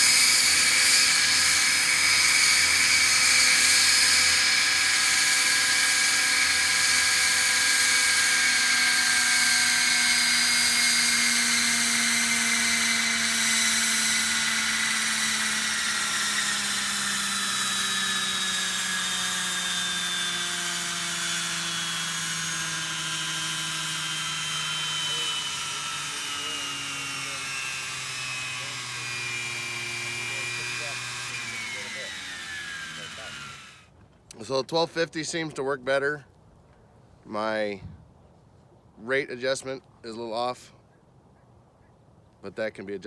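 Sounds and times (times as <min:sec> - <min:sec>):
rc helicopter rotor whining: 0:00.0 - 0:34.4.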